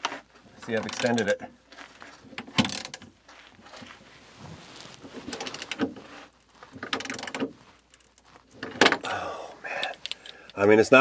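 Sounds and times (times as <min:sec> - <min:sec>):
socket wrench ratcheting clicks: 0:09.8 - 0:10.6.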